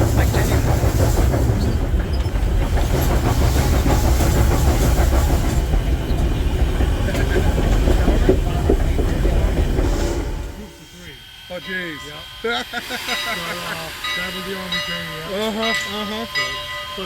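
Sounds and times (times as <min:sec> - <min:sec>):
wheels clattering on rail: 0:00.0 - 0:10.6
steam train rumbling: 0:00.0 - 0:17.0.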